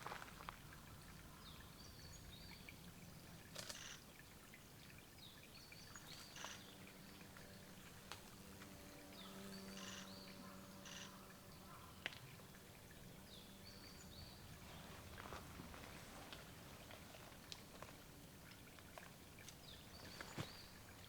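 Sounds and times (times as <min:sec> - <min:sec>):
small birds calling: 0:19.4 - 0:21.0.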